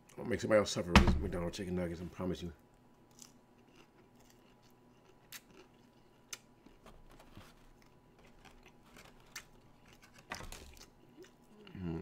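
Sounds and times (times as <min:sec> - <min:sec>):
person chewing soft food: 0:03.1 - 0:12.0.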